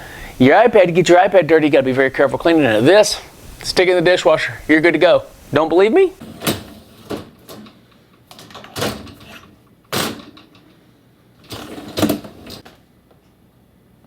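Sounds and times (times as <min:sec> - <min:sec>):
dishwasher rack clunks and rattles: 0:06.2 - 0:10.6, 0:11.5 - 0:12.6.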